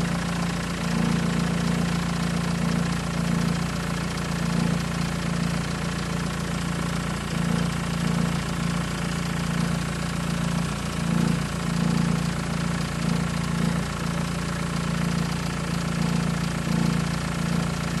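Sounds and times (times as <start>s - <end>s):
engine idling with fast rattle: 0.0s - 18.0s.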